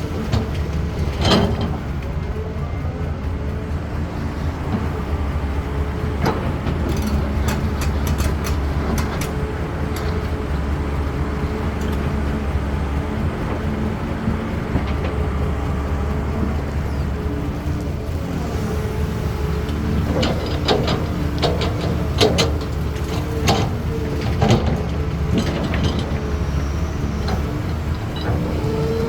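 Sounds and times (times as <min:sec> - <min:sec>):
excavator diesel engine rumbling: 0:00.0 - 0:29.0
sharp knocks and clatter: 0:00.2 - 0:02.0, 0:06.0 - 0:12.3, 0:19.4 - 0:26.4.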